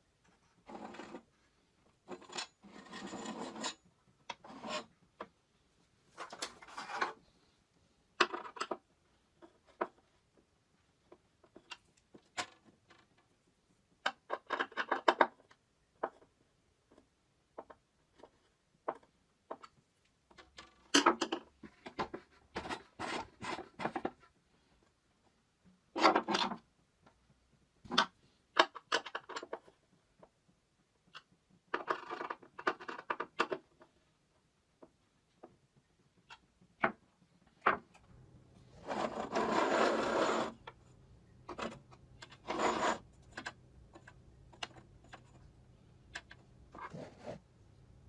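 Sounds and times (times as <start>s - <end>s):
hard objects scraping and clicking: 6.2s - 7.2s, 38.8s - 40.8s, 41.4s - 45.5s.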